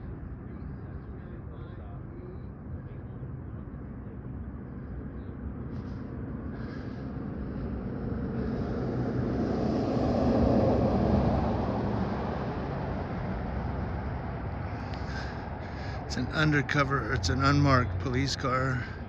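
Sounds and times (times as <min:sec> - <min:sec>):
vehicle passing by: 0:05.5 - 0:19.0.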